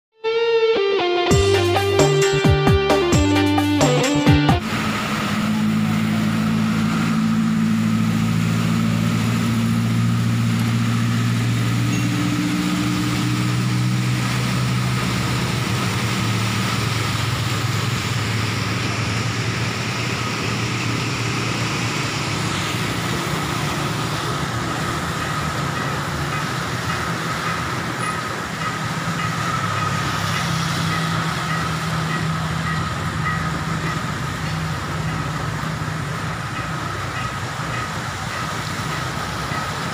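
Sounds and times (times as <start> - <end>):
background music: 0.2 - 4.6
motor vehicle running: 1.3 - 39.9
steady rain: 4.6 - 39.9.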